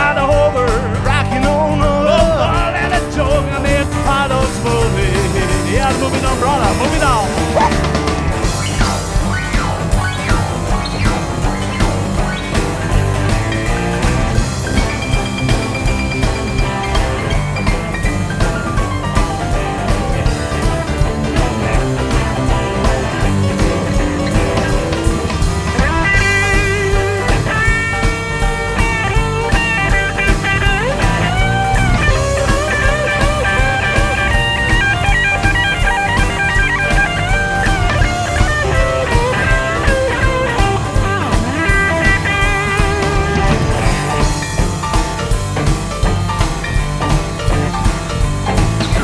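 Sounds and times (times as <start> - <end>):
steady drum beat: 0.0 - 49.0
electric guitar solo: 25.8 - 44.2.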